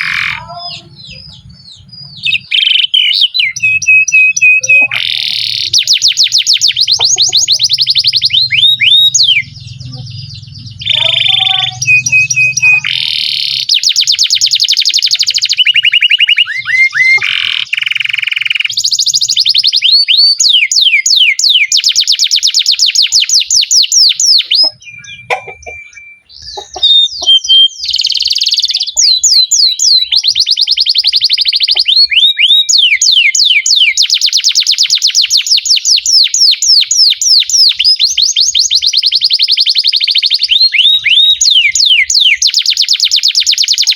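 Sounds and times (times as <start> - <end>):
canary singing trills: 0.0 - 43.9.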